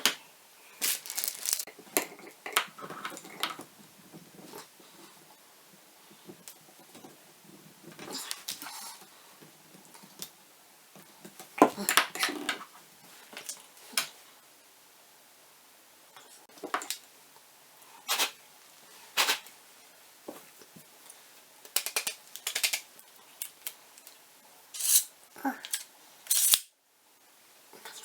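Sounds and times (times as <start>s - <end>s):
small parts and tools clinking: 0.8s - 3.6s, 24.8s - 26.7s.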